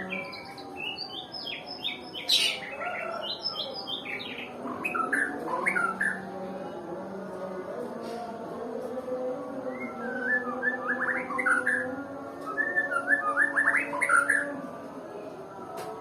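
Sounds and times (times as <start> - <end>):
bird singing whistled notes: 0.0 - 6.3, 9.8 - 14.5.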